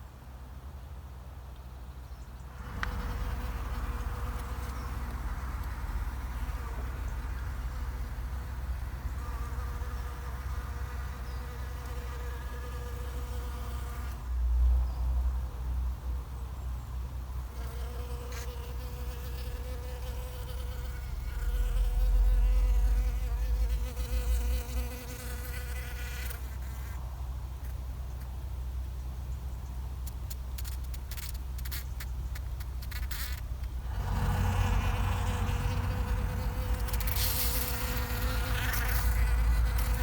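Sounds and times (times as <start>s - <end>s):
bees buzzing: 33.7s - 40.0s.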